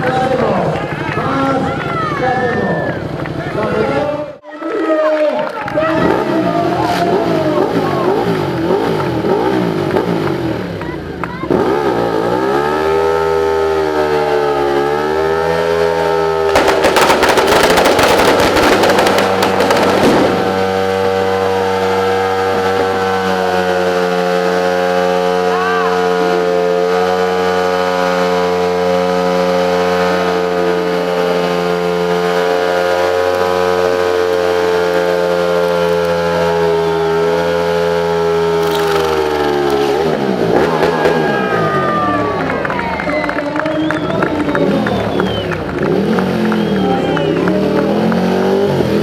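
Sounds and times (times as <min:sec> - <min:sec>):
motorcycle engine high revs: 0:05.9 - 0:41.5, 0:44.5 - 0:49.0
loud crackling: 0:16.5 - 0:22.0, 0:38.6 - 0:41.4.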